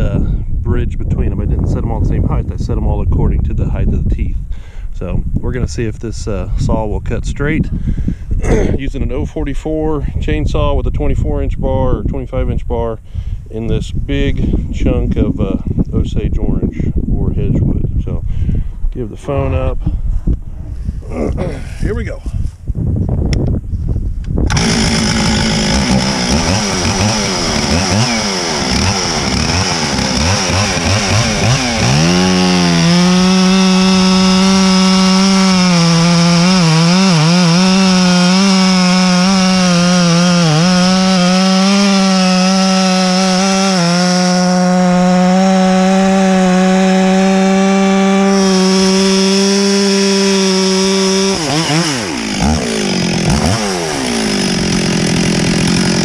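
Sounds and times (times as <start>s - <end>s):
chainsaw cutting log: 24.5s - 56.0s.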